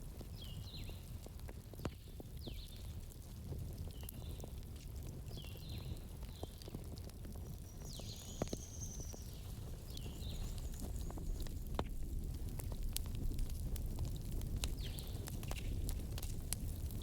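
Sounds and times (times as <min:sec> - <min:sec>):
campfire crackling: 0:00.0 - 0:17.0
sharp pops from fire: 0:03.4 - 0:17.0.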